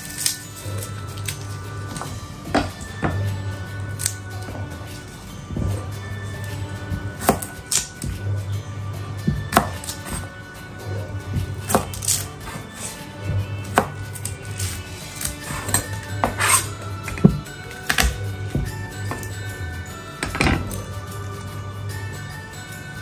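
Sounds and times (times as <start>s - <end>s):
background music with bass line: 0.0s - 23.0s
knife chopping on cutting board: 7.2s - 8.2s, 9.3s - 10.2s, 11.4s - 12.9s, 13.7s - 14.3s, 15.2s - 19.2s.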